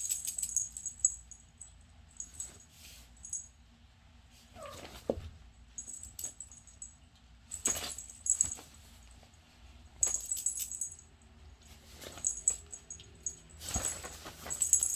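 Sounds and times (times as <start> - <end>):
collar bell jingling: 0.0 - 2.6, 7.6 - 8.7, 10.0 - 11.2, 11.9 - 14.9.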